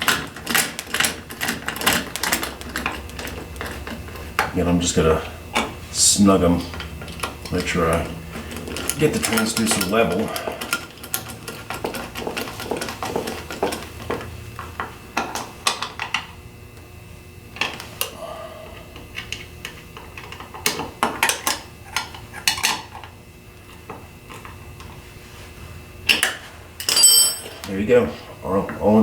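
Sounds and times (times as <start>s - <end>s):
tools clinking on metal: 26.1s - 27.7s.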